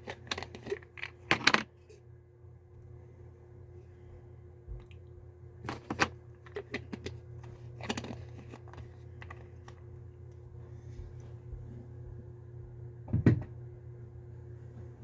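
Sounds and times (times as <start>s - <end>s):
pills rattling in a bottle: 0.0s - 1.6s, 7.8s - 9.5s
steady low hum: 0.0s - 15.0s.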